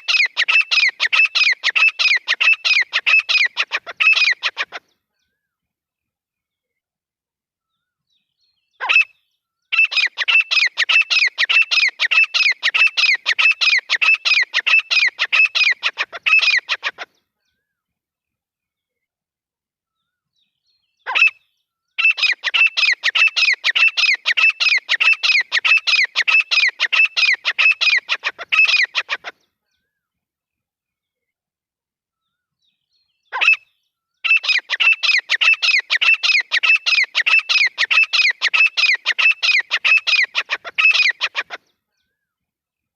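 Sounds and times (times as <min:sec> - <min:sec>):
francolin calling: 0:00.0 - 0:04.8, 0:08.9 - 0:17.0, 0:22.0 - 0:29.3, 0:33.4 - 0:41.6.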